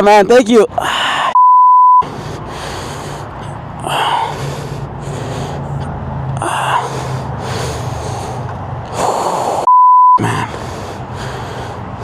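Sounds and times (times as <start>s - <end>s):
loud gasping breaths: 0.7s - 1.4s, 2.0s - 12.0s
person breathing hard: 0.8s - 1.4s, 2.0s - 12.0s.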